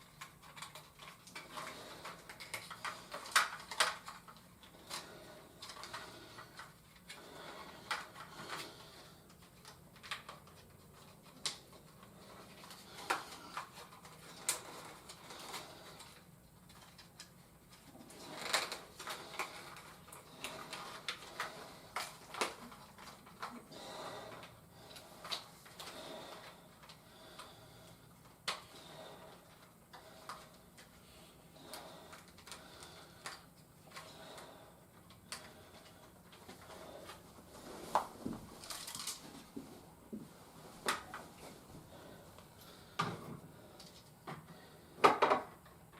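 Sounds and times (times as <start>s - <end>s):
plastic pieces clicking: 0.1s - 5.0s, 18.4s - 23.6s.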